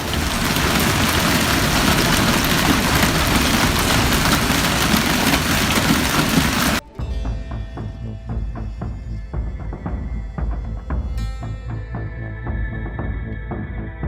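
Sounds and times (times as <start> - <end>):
avalanche rushing roar: 0.0 - 6.8
dramatic music with deep drums: 0.0 - 14.0.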